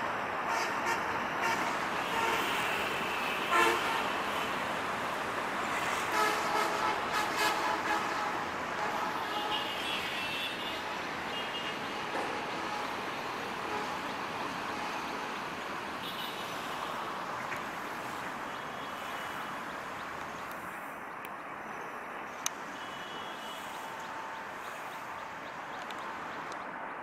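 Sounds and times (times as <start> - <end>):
train coaches rolling on track: 0.0 - 20.8.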